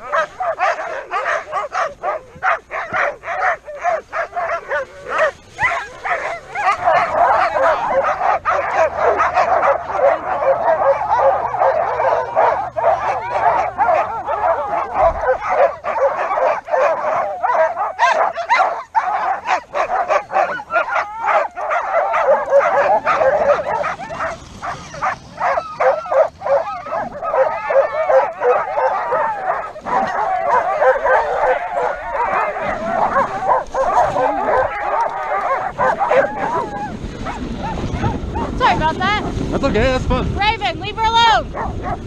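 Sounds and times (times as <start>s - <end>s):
sled dogs barking and yipping: 0.0s - 42.0s.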